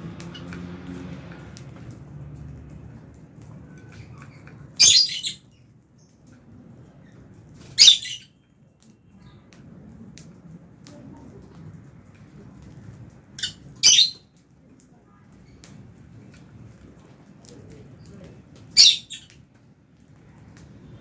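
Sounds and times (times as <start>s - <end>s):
lovebirds squawking: 3.8s - 5.5s, 7.7s - 8.3s, 13.4s - 14.2s, 18.8s - 19.3s.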